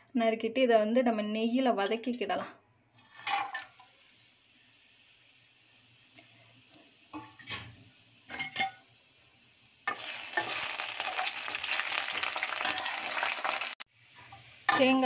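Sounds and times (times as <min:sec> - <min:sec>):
coconut sizzling in hot ghee: 0:03.0 - 0:15.0.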